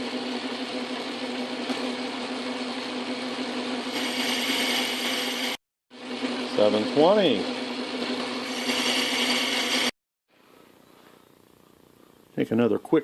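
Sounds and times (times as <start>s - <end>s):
metal lathe humming: 0.3s - 10.0s
high hiss of cutting: 3.9s - 5.6s, 8.5s - 9.9s.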